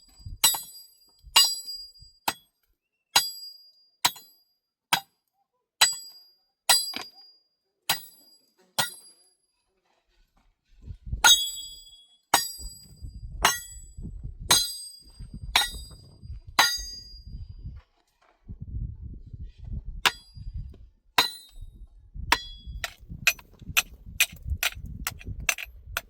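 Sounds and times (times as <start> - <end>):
hammer striking stone: 0.4 - 2.5, 3.2 - 5.2, 5.8 - 7.2, 7.9 - 8.2, 8.8 - 9.2, 11.2 - 12.8, 14.5 - 16.0, 16.6 - 17.1, 20.1 - 20.3, 21.2 - 21.6, 22.3 - 26.0.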